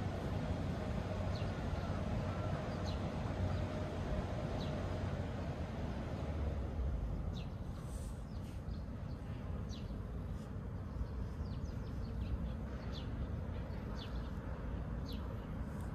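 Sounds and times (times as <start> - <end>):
steady low rumble: 0.0 - 15.9
small birds chirping: 7.3 - 15.9.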